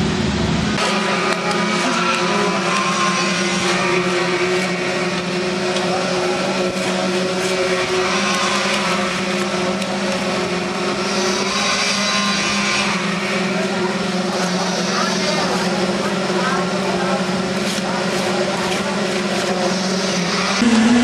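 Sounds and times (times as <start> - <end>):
engine running steadily: 13.3 - 21.0.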